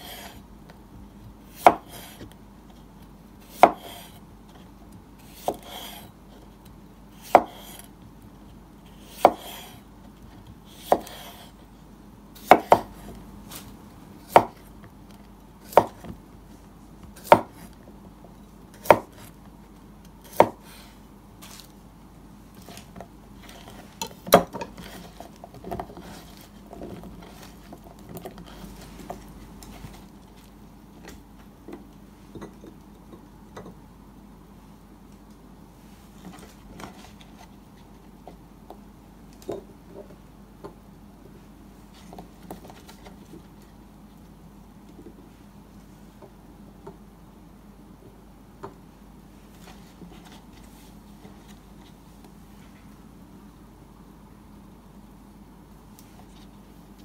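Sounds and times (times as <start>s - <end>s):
knife chopping on cutting board: 1.5s - 2.2s, 3.5s - 4.2s, 5.3s - 6.1s, 7.2s - 7.9s, 9.0s - 9.8s, 10.7s - 11.5s, 12.4s - 13.2s, 14.2s - 14.7s, 15.7s - 16.2s, 17.1s - 17.7s, 18.8s - 19.3s, 20.3s - 20.7s.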